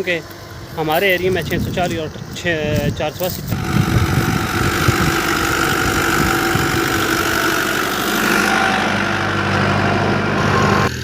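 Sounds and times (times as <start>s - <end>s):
tractor engine idling: 3.5s - 11.0s.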